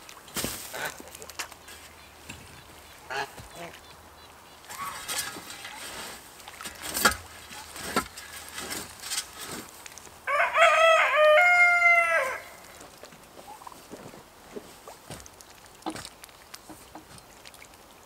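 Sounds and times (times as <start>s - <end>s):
rooster crowing: 10.3s - 12.6s.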